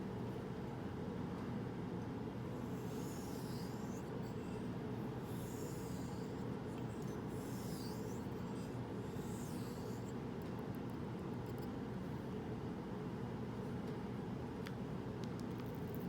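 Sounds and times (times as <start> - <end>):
steady low hum: 0.0 - 16.0
razor scraping on whetstone: 2.5 - 10.6.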